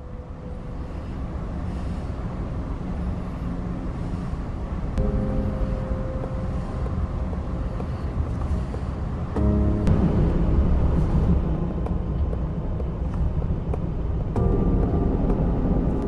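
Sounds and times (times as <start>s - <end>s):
train rumbling: 0.0s - 16.0s
held chord of steady tones: 5.0s - 8.4s.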